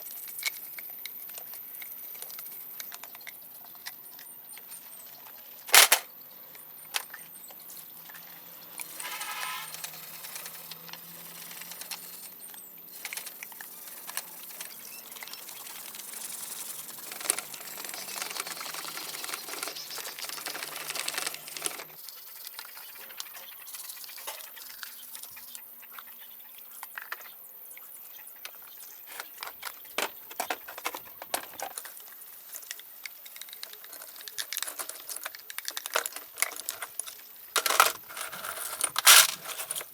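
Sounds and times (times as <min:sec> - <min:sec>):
metal tools clinking: 0:05.7 - 0:06.1, 0:33.8 - 0:39.9.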